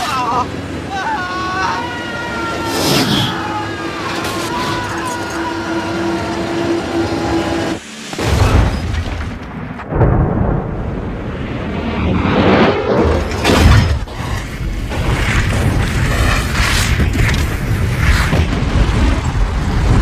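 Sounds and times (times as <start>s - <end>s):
airliner drone: 0.0s - 20.0s
deep rumbling booms and crashes: 8.2s - 20.0s.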